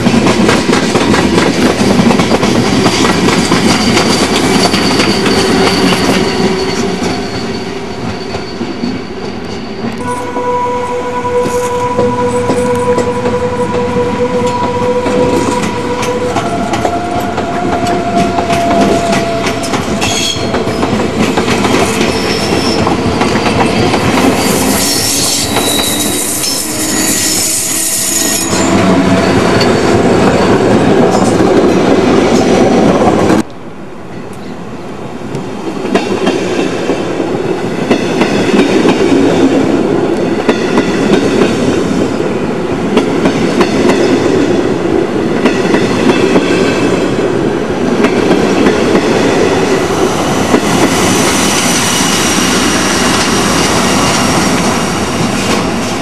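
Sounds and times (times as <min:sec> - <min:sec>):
train wheels squealing: 0:03.6 - 0:10.2, 0:11.5 - 0:21.0, 0:21.6 - 0:30.6.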